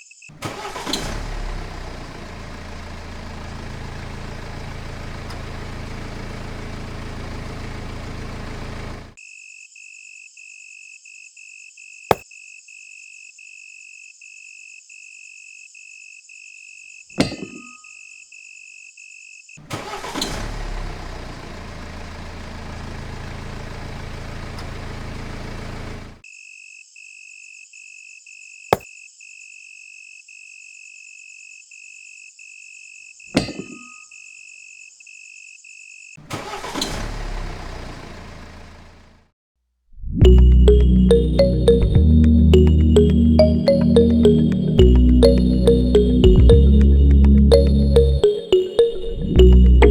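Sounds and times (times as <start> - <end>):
engine starting and running: 0.4 - 9.2, 19.6 - 26.2, 36.2 - 39.3, 40.0 - 49.9
pulsed beeping chime: 40.2 - 49.9.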